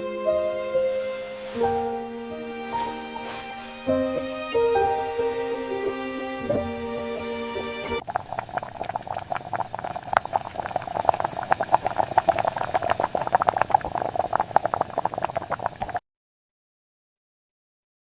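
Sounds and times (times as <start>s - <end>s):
soft music: 0.0s - 8.0s
pot bubbling: 0.9s - 2.1s, 2.7s - 3.8s, 8.0s - 16.0s.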